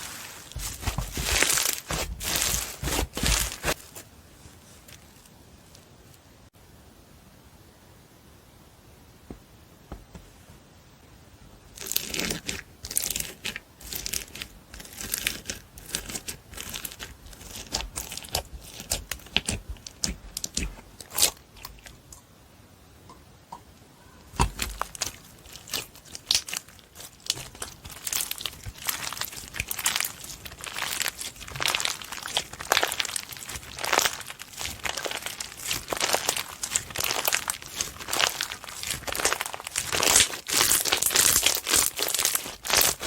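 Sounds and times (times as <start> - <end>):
slime crackling and popping: 0.0 - 3.8, 11.8 - 22.0, 24.4 - 43.0.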